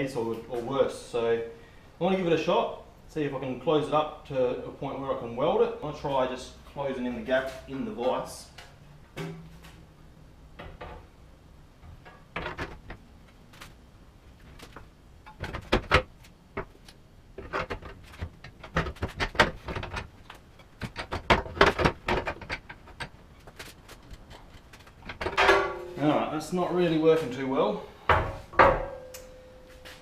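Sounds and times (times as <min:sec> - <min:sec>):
metal clanks from a bench vise: 0:25.2 - 0:26.0.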